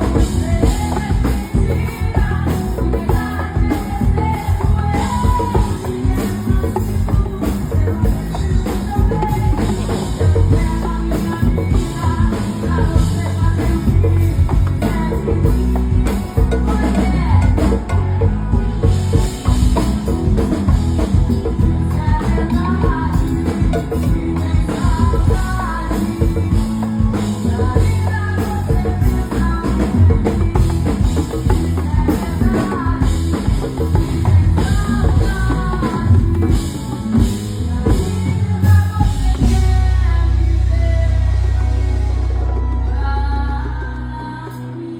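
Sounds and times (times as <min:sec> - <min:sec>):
bass beat: 0:00.0 - 0:44.1
band music: 0:00.0 - 0:44.9
drum kit: 0:00.0 - 0:44.9
person singing: 0:00.0 - 0:44.9.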